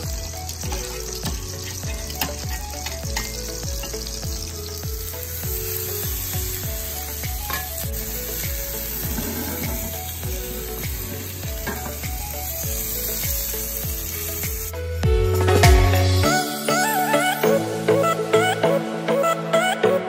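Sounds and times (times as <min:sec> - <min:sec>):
meat sizzling in a pan: 0:00.0 - 0:14.9
music with thumping beat: 0:00.0 - 0:16.3.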